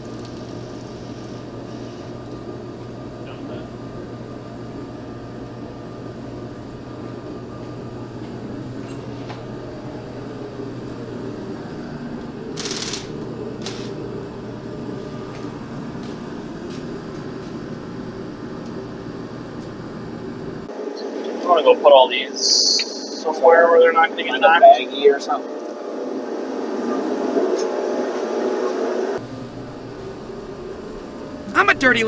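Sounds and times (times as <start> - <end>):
low machine hum: 0.0 - 20.7, 29.2 - 32.0.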